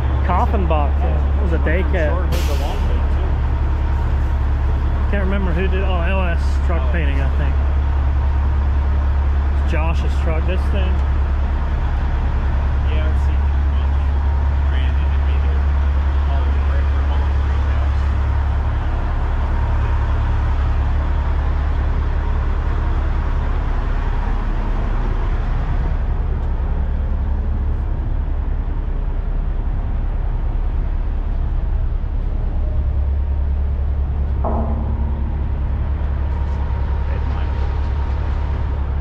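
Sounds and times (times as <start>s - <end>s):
diesel truck engine idling: 0.0s - 39.0s
short higher tone: 34.4s - 37.7s.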